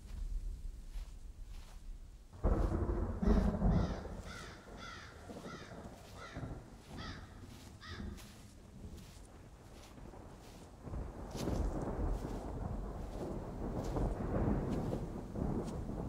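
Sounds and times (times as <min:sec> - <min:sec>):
low rumble of thunder: 0:00.0 - 0:16.0
crows cawing: 0:02.5 - 0:09.2.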